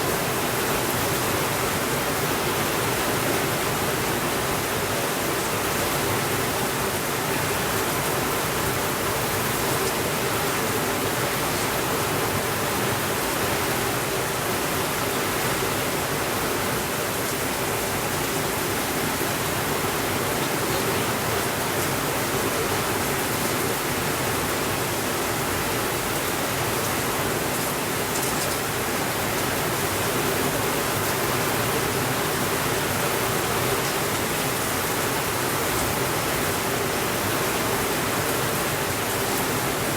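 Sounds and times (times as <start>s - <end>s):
steady rainfall hiss: 0.0s - 39.9s.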